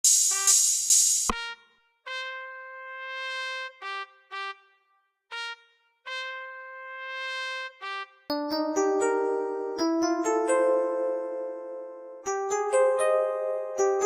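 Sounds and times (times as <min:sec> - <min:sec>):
trumpet melody: 0:00.1 - 0:09.2.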